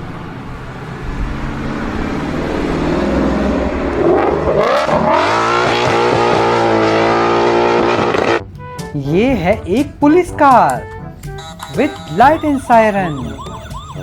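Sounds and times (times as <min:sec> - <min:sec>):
car engine revving: 0:00.2 - 0:08.5.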